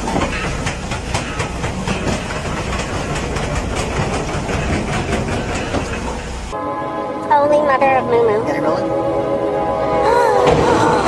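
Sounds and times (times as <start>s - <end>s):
wheels clicking over rails: 0.0s - 6.6s
train rumbling past: 0.0s - 11.0s.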